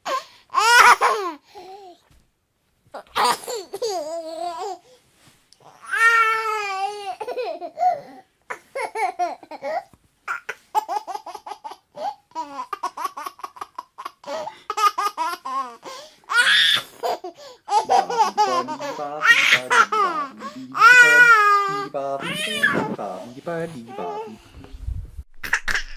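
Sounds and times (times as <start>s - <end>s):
baby laughing: 3.0s - 4.8s, 6.5s - 22.8s, 25.4s - 25.9s.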